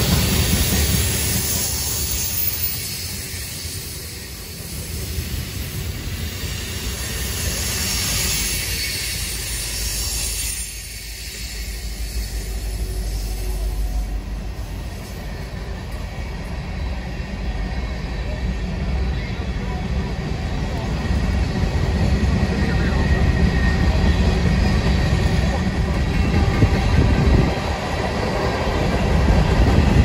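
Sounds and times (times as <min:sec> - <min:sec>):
high hiss: 0:00.0 - 0:16.0
train wheels rumbling on rail: 0:00.0 - 0:30.0.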